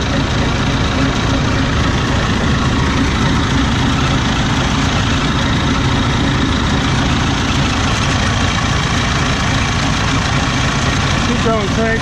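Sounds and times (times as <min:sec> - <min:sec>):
combine harvester engine idling: 0:00.0 - 0:12.0.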